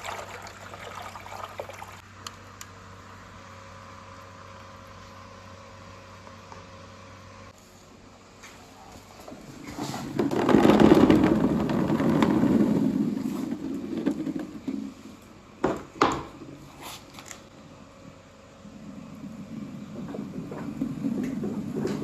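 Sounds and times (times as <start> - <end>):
marbles rolling down marble run: 10.2 - 14.8.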